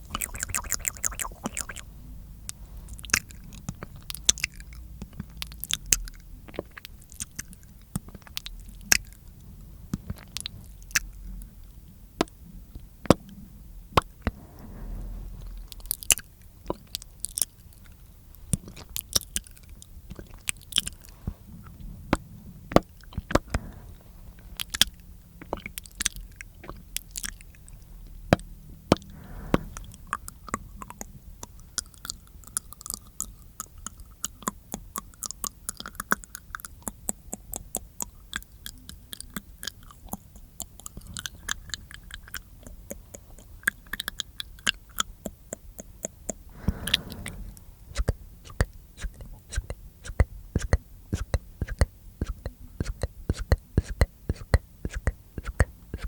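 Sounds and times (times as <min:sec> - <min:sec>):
wet tongue and lip clicks: 0:00.0 - 0:09.2, 0:24.6 - 0:29.1, 0:29.7 - 0:47.2, 0:47.9 - 0:56.0.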